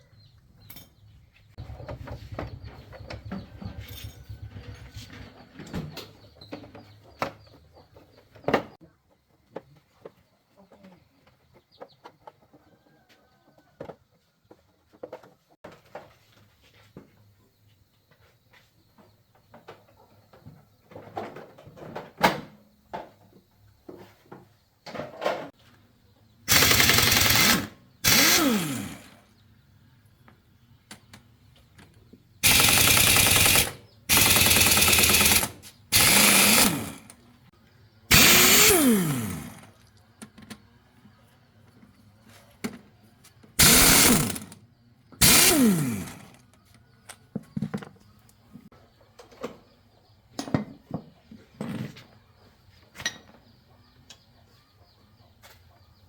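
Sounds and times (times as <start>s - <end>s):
power tool bursts: 26.5s - 29.3s, 32.4s - 37.2s, 38.1s - 39.8s, 43.6s - 44.6s, 45.2s - 46.4s.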